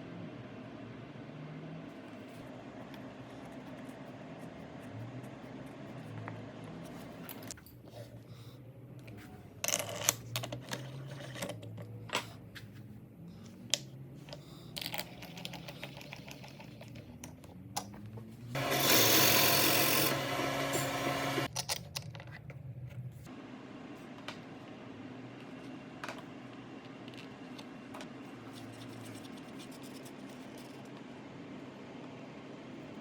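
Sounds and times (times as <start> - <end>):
loud rushing whirring noise: 18.6 - 21.5.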